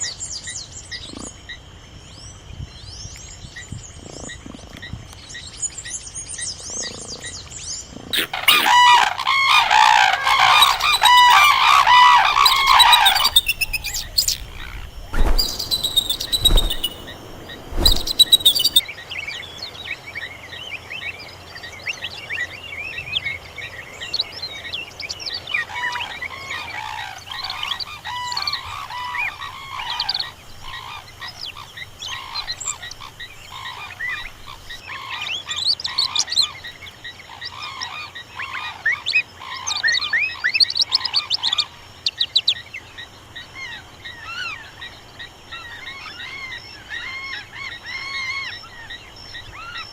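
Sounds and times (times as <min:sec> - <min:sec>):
birds chirping: 0:08.2 - 0:18.8
frogs croaking: 0:08.2 - 0:18.8.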